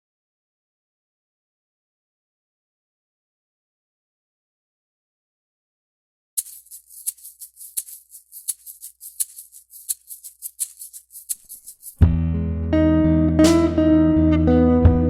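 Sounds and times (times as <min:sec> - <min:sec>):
shaker playing rhythm: 0:06.4 - 0:12.1
guitar-led band playing: 0:12.0 - 0:15.0.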